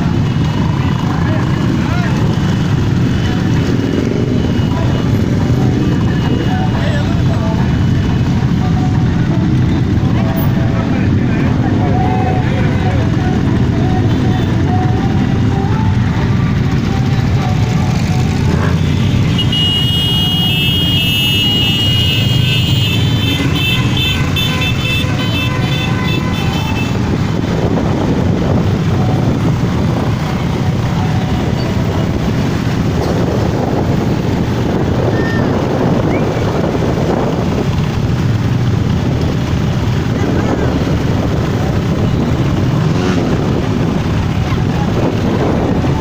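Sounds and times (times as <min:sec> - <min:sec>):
motorcycles passing: 0:00.0 - 0:46.0
horn tooting: 0:16.7 - 0:27.4.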